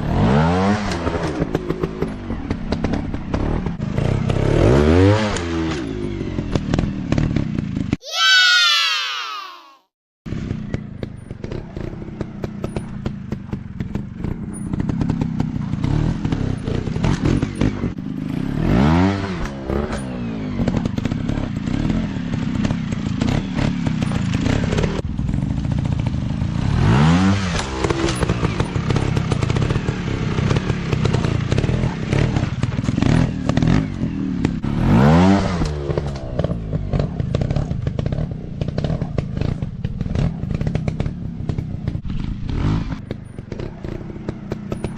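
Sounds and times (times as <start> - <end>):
dirt bike engines revving: 10.3 - 44.9.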